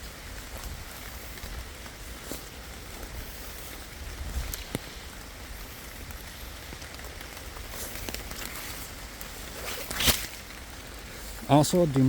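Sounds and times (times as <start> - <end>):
rain patter: 0.0 - 12.0
light ticks: 4.4 - 5.3.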